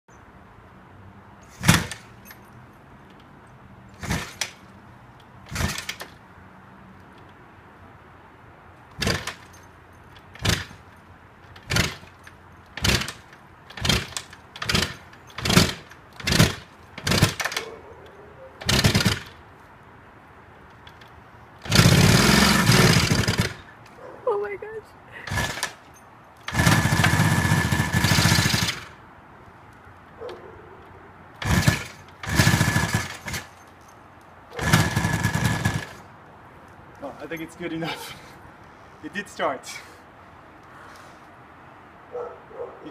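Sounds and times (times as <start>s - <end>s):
motorcycle being kick-started: 1.6s - 2.5s, 4.0s - 4.7s, 5.4s - 6.2s, 8.9s - 10.9s, 11.5s - 17.8s, 18.6s - 19.4s, 20.8s - 23.7s, 25.3s - 29.0s, 31.4s - 33.9s, 34.6s - 36.0s.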